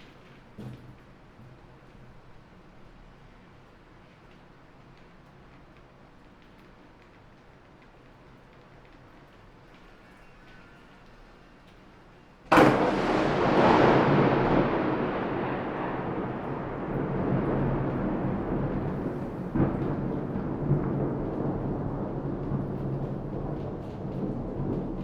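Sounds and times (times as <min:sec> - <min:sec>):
rain hissing: 0:12.5 - 0:25.0
thunder cracking and rumbling: 0:12.5 - 0:25.0.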